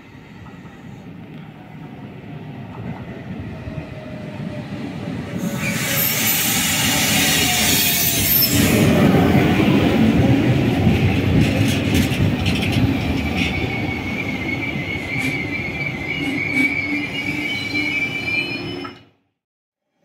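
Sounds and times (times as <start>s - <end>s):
electric train rumbling: 0.0s - 19.1s
high wheel squeal: 5.4s - 8.9s, 12.6s - 19.1s.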